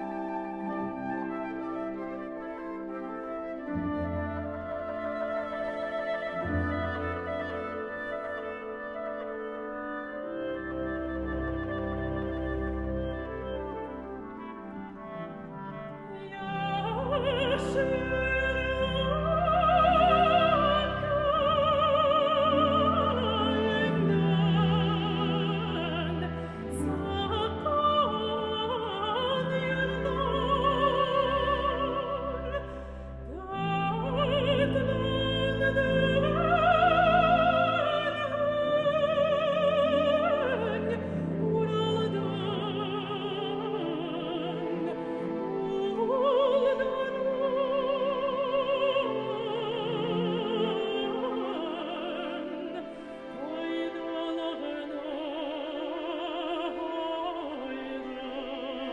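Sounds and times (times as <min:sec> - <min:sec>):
orchestral accompaniment: 0:00.0 - 0:58.9
operatic woman singing: 0:02.6 - 0:58.9.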